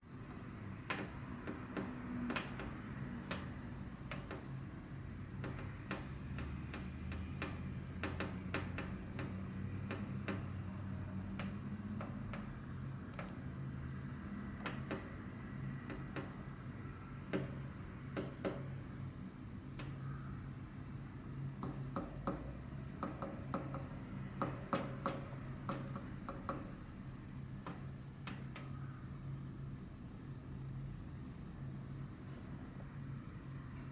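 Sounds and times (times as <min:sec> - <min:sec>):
bird beak tapping cage wire: 0:00.9 - 0:04.5, 0:05.4 - 0:10.5.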